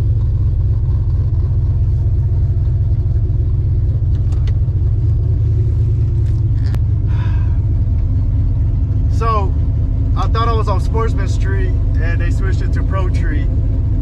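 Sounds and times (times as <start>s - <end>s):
truck engine deep rumble: 0.0s - 14.0s.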